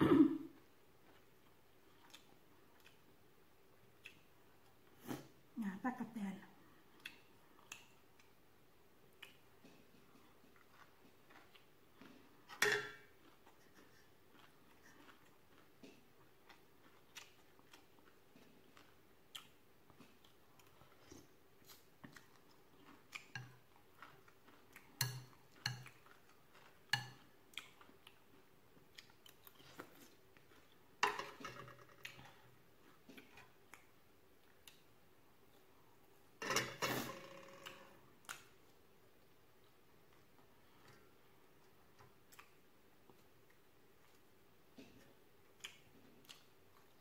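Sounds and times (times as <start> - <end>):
chewing and mouth sounds: 1.0 - 3.2, 9.1 - 30.8, 38.2 - 47.0.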